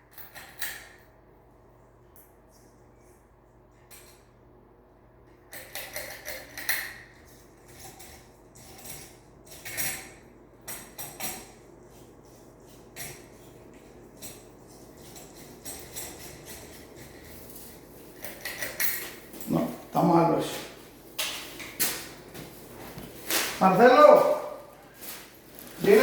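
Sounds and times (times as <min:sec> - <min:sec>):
hard parts clinking and rattling: 0:05.5 - 0:20.6, 0:21.2 - 0:26.0.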